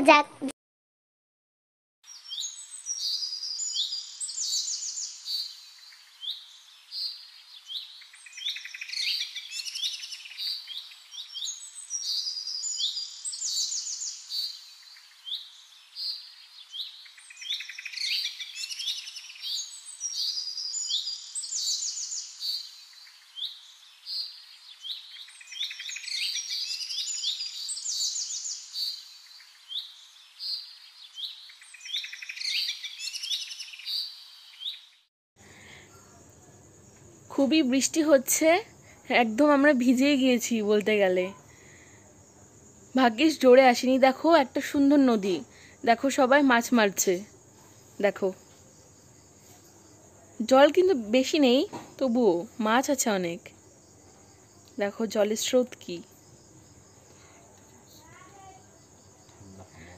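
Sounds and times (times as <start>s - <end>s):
birds chirping and singing: 2.1s - 35.0s.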